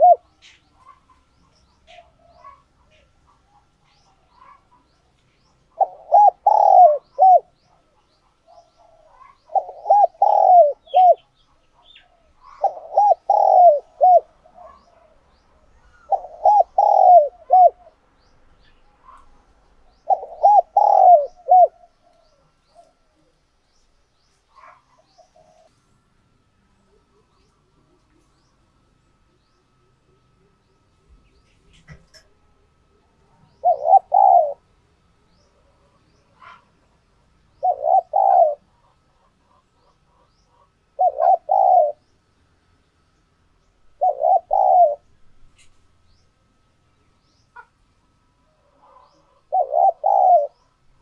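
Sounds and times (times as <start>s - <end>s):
dove cooing: 0.0s - 18.0s, 19.0s - 23.4s, 24.5s - 25.7s, 29.9s - 42.1s, 43.9s - 45.8s, 48.4s - 51.0s.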